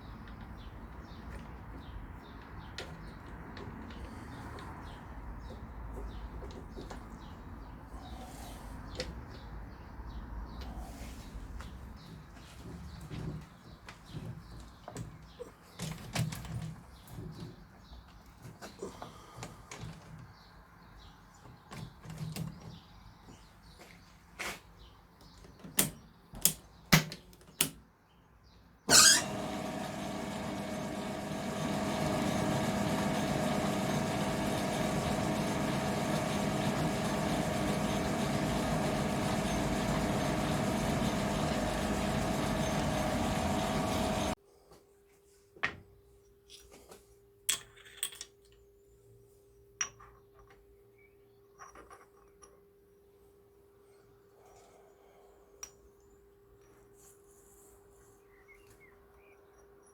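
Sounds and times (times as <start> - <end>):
machine tool motor whining: 28.9 - 44.4.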